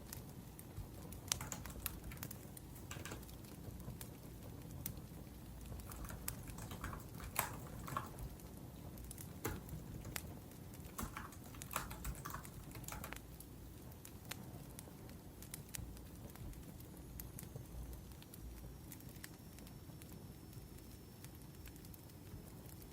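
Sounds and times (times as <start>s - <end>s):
wood fire crackling: 0.0s - 22.9s
laptop keyboard typing: 0.8s - 3.7s, 5.6s - 13.4s.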